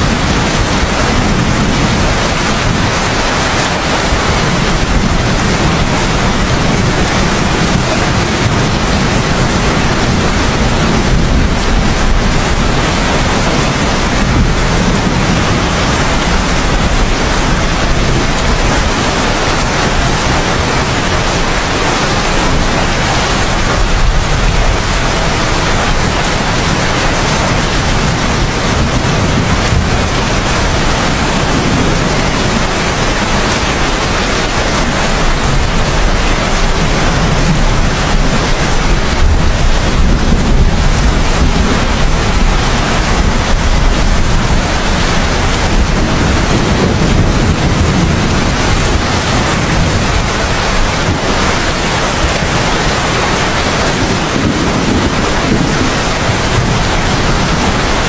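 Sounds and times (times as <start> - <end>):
heavy rain: 0.0 - 58.0
deep low rumble: 22.0 - 32.9.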